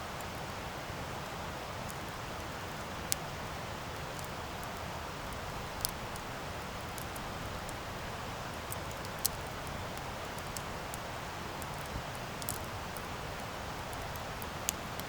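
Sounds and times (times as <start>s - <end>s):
faint fire crackles: 0.0s - 15.0s
burning wood popping: 4.0s - 15.0s.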